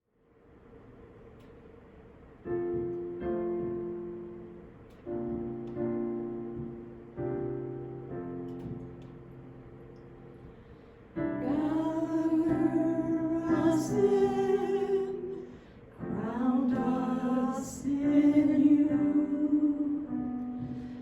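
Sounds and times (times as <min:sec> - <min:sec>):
slow music: 0:02.4 - 0:21.0.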